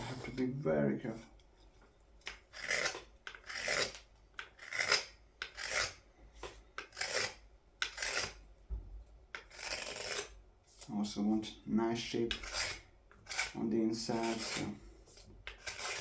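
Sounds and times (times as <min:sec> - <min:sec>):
knife scraping wood: 0:00.0 - 0:00.5, 0:02.2 - 0:08.4, 0:09.3 - 0:10.9, 0:12.2 - 0:16.0.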